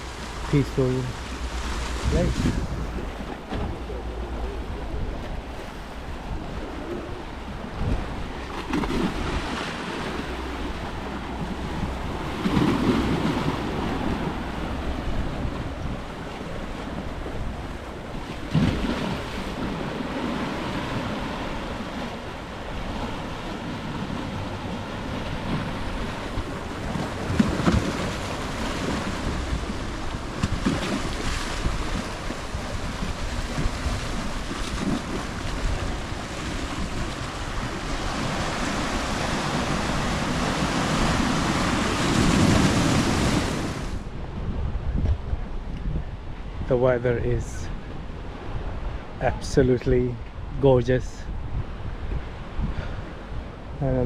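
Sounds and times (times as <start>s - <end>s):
sea waves breaking on rocks: 0.0s - 45.4s
wind buffeting microphone: 0.0s - 54.0s.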